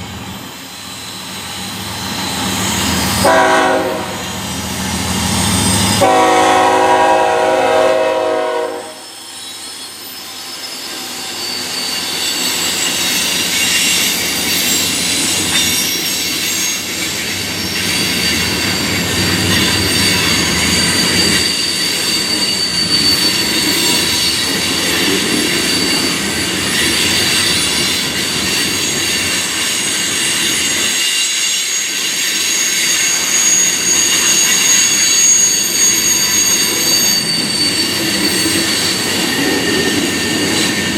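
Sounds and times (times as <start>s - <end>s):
freight train rumble and clatter: 0.0s - 40.9s
train wheels squealing on rail: 0.0s - 40.9s
diesel locomotive horn: 3.2s - 4.4s, 6.0s - 9.0s.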